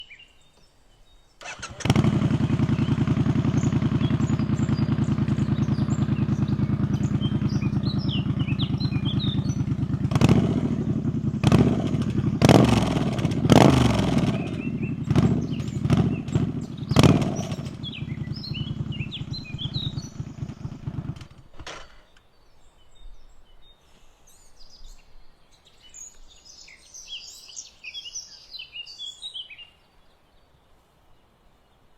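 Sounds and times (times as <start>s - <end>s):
birds chirping: 0.0s - 31.9s
motorcycle engine idling and revving: 1.4s - 22.1s.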